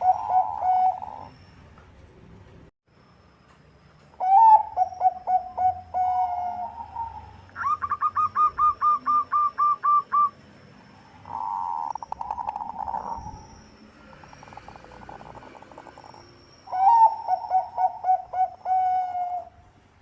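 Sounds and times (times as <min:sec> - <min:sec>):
dove cooing: 0:00.0 - 0:01.3, 0:04.2 - 0:10.4, 0:11.2 - 0:19.6.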